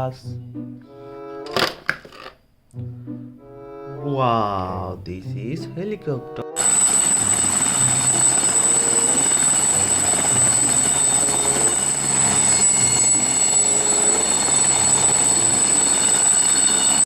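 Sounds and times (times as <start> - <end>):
helicopter rotor whir: 6.6 - 17.0
high engine whine: 6.6 - 17.0.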